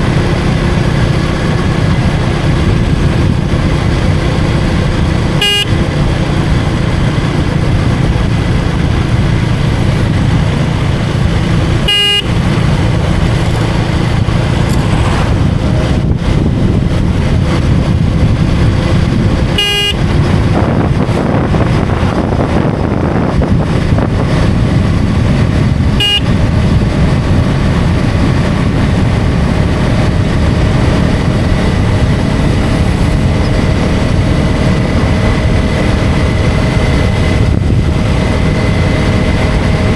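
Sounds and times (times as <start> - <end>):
motorcycle engine running: 0.0 - 39.9
wind rush: 0.0 - 39.9
short horn toots: 5.3 - 5.8, 11.8 - 12.6, 19.6 - 20.2, 26.0 - 26.3.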